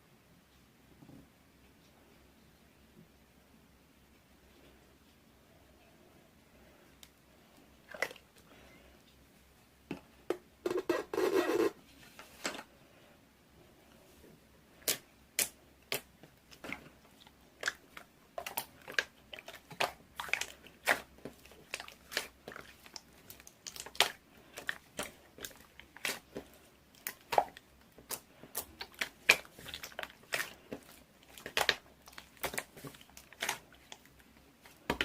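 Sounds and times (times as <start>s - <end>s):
slime squishing: 7.8s - 8.5s, 14.8s - 35.0s.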